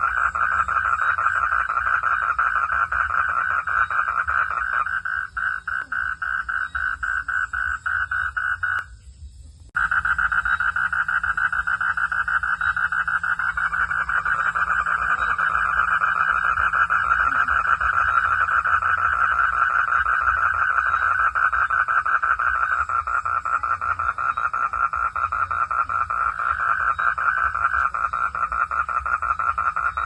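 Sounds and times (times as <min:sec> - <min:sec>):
frogs calling in chorus: 0:00.0 - 0:09.0, 0:09.8 - 0:30.0.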